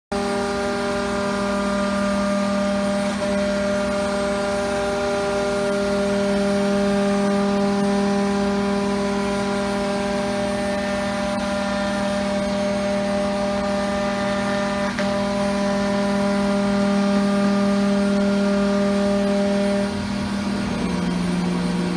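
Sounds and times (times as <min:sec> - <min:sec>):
cnc router humming whine: 0:00.1 - 0:21.9.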